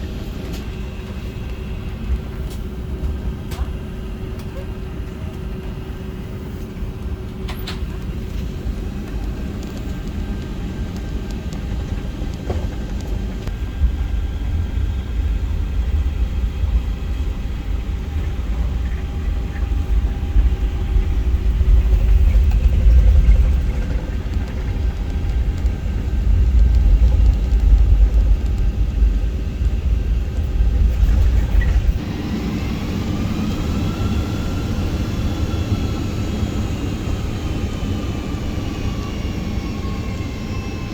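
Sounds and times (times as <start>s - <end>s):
jet engine noise: 0.0s - 40.9s
wheels rumbling on runway: 0.0s - 40.9s
rising whining tones: 13.7s - 40.9s.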